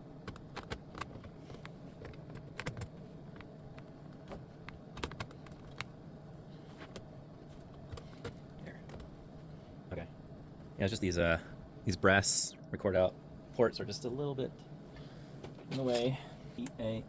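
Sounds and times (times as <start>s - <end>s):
hands clicking and tapping parts: 0.2s - 5.9s.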